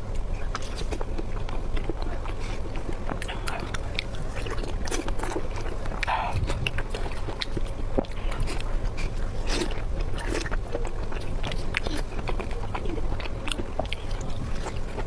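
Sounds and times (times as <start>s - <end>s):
chewing food: 0.0s - 15.0s.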